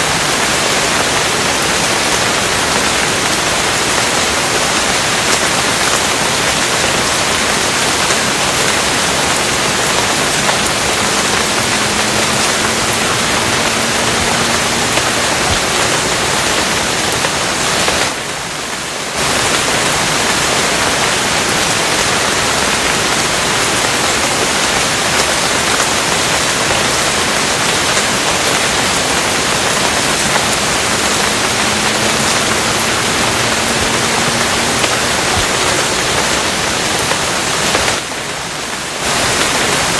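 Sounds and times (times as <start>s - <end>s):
dense rain hiss: 0.0s - 39.9s.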